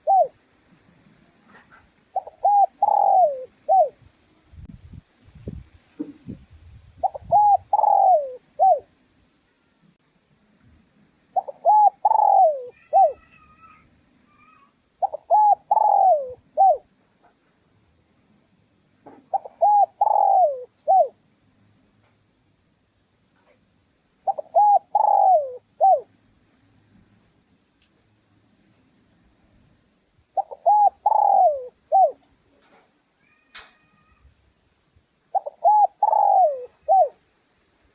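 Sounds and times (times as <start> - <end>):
dove cooing: 0.0 - 0.4, 1.4 - 4.0, 7.0 - 8.9, 11.4 - 13.8, 15.0 - 16.9, 19.1 - 21.2, 24.2 - 26.1, 30.3 - 32.3, 35.3 - 37.2.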